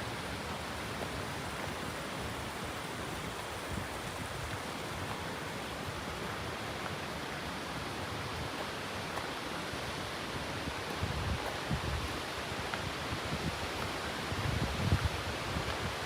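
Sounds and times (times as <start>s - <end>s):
rushing water: 0.0s - 16.0s
wind buffeting on microphone: 10.8s - 16.0s.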